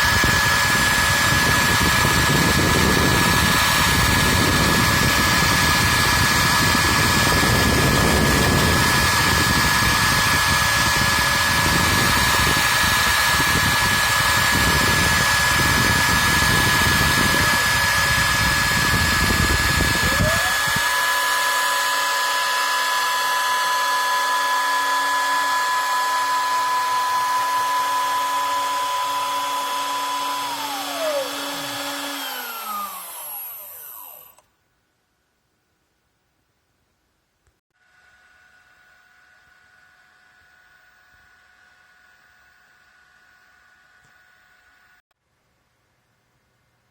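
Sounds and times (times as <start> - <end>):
cnc router spindle whine: 0.0 - 34.4.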